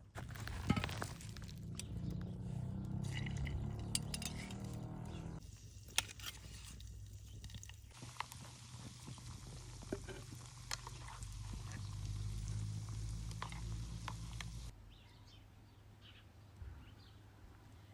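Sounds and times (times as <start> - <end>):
sharp oil pops and crackles: 5.8 - 14.7
potatoes sizzling in hot oil: 6.4 - 14.7.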